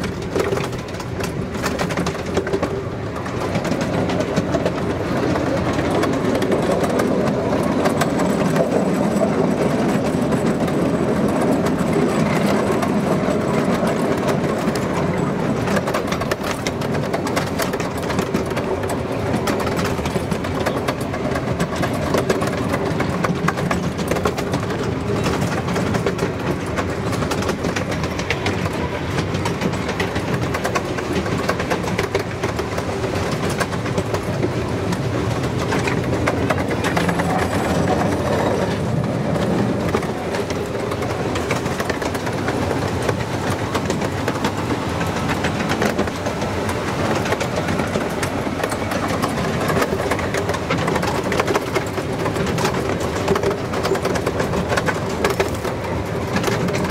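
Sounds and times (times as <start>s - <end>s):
fine clicks of rails: 0.0s - 56.9s
train wheels rumbling on rails: 0.0s - 56.9s.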